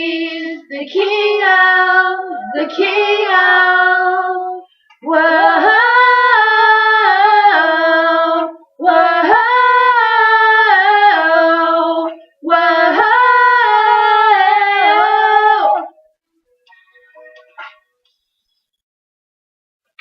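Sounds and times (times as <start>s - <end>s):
woman singing unaccompanied: 0.0s - 16.0s.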